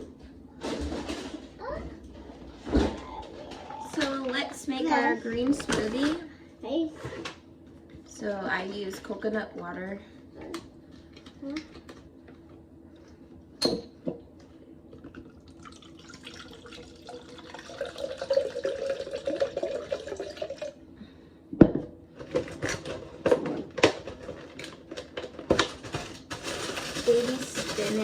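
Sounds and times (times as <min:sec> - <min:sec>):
coconut water pouring: 0:15.2 - 0:20.8.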